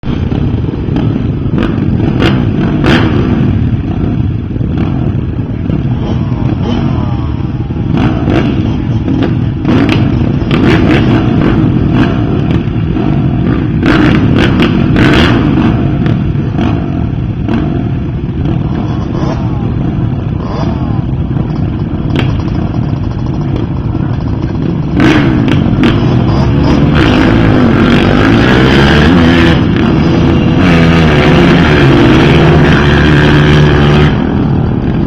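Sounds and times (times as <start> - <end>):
dirt bike engines revving: 0.0 - 35.0
sharp cracks: 20.4 - 27.4.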